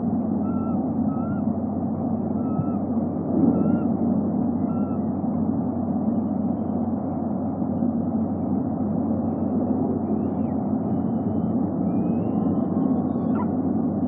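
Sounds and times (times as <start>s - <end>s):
low rumbling background noise: 0.0s - 14.0s
whistled bird call: 0.4s - 1.5s, 2.4s - 2.8s, 3.6s - 3.9s, 4.6s - 5.1s, 10.1s - 13.5s
faint rising and falling whistle: 9.2s - 13.5s.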